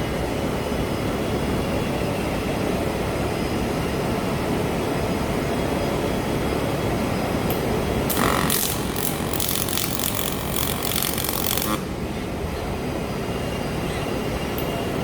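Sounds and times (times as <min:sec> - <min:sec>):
welding arc crackling: 0:08.1 - 0:12.0.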